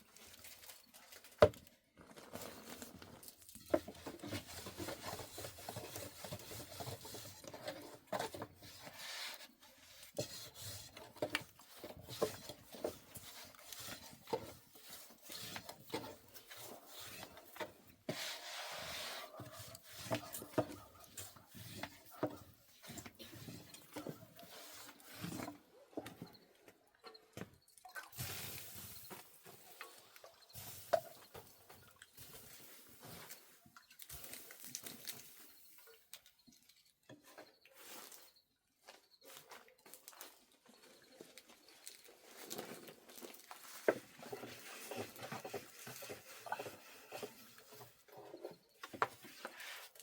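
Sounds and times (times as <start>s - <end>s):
rubbing and scraping on wood: 2.2s - 26.4s, 42.2s - 50.0s.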